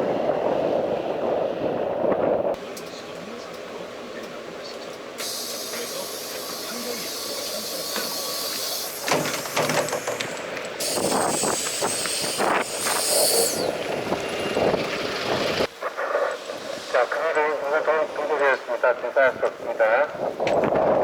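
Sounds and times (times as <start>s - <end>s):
bus engine running: 2.6s - 15.8s
compressed air hiss: 5.2s - 13.8s
clatter and knocks: 9.1s - 10.5s.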